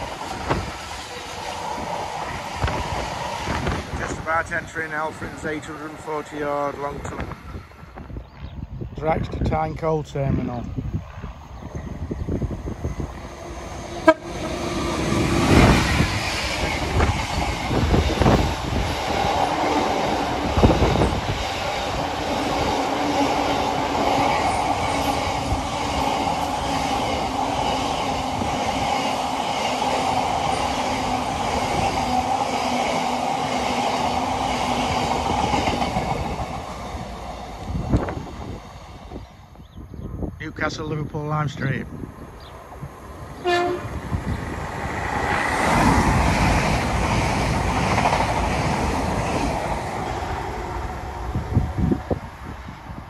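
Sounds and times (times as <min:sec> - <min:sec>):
train horn toot: 0:13.9 - 0:14.8, 0:43.4 - 0:44.0
wheel-on-rail noise: 0:42.2 - 0:53.0.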